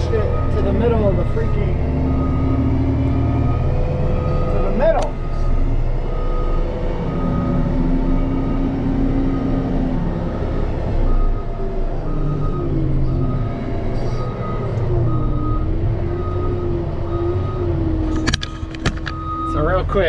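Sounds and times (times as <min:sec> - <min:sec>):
backup alarm beeping: 0:00.0 - 0:17.8, 0:19.1 - 0:19.6
diesel engine running: 0:00.0 - 0:20.0
sharp knocks: 0:18.2 - 0:19.2.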